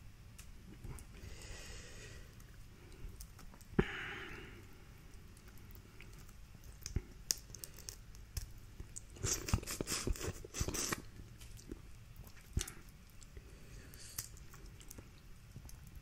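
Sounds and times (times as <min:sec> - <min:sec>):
crackling: 0:00.2 - 0:16.0
chewing: 0:05.0 - 0:16.0.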